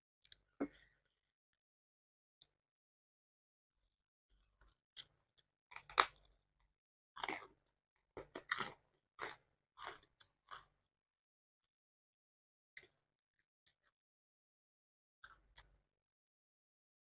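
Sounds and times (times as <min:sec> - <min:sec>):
crunchy food chewing: 0:07.2 - 0:07.6, 0:08.2 - 0:10.8.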